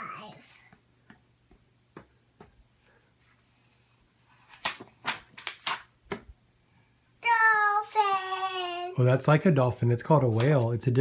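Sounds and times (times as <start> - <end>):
page turning rustles: 4.3 - 6.3, 10.3 - 10.7.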